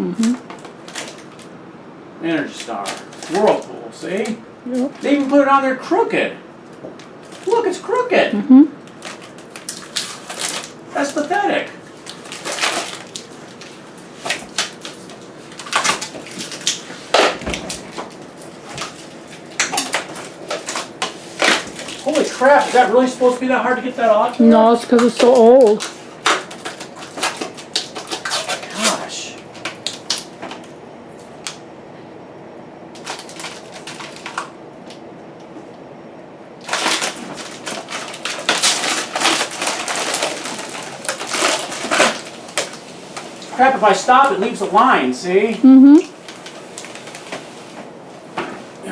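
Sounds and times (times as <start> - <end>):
plastic film peeling off steel: 12.0 - 23.3, 25.8 - 30.7, 36.6 - 42.8.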